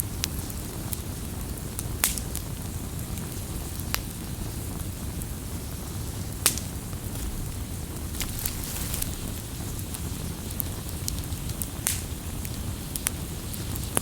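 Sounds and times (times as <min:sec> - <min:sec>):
campfire burning rumble: 0:00.0 - 0:14.0
fire popping: 0:03.8 - 0:14.0.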